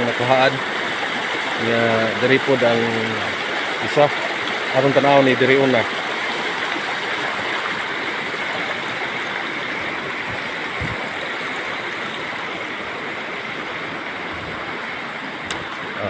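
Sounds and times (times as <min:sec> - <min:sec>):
spring water running: 0:00.0 - 0:16.0.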